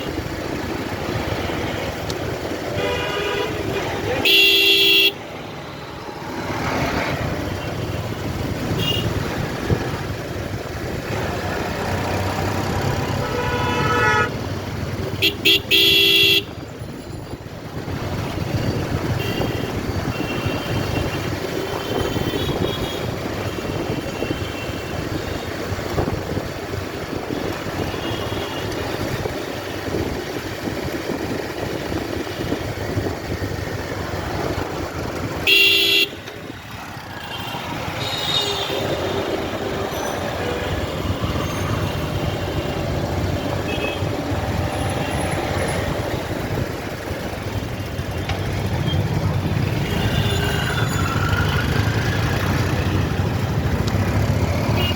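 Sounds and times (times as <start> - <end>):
road traffic: 0.0 - 54.9
vehicle horn toots: 2.8 - 5.2, 13.1 - 14.3, 15.2 - 16.5, 35.4 - 36.2.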